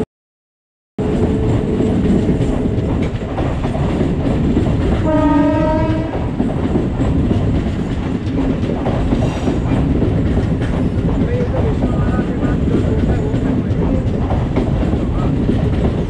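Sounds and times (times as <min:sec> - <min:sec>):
train wheels rumbling on rails: 0:01.0 - 0:16.0
train horn blast: 0:05.0 - 0:06.4.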